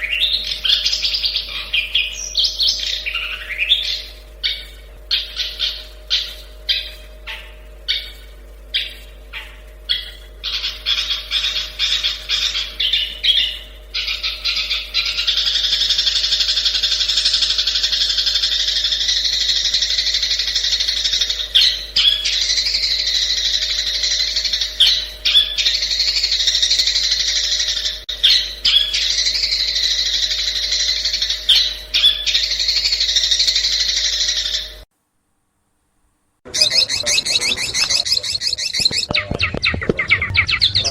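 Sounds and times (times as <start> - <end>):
bird singing harsh calls: 0.0 - 34.8, 36.5 - 40.9
fast bird chattering song: 0.0 - 34.8, 36.5 - 40.9
loud sharp bird notes: 0.0 - 34.8, 36.5 - 40.9.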